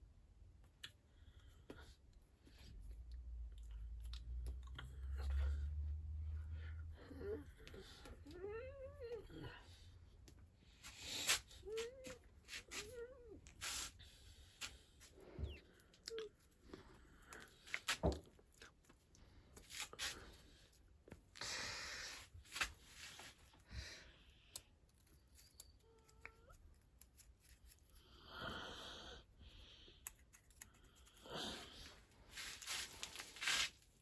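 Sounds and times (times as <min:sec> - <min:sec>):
rustling and scraping: 0:10.8 - 0:15.6, 0:19.6 - 0:20.5, 0:30.3 - 0:34.0.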